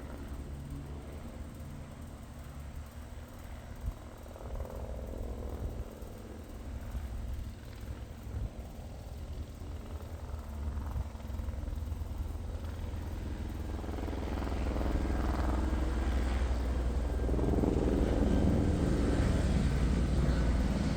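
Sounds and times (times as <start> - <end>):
helicopter flying overhead: 0.0 - 20.9.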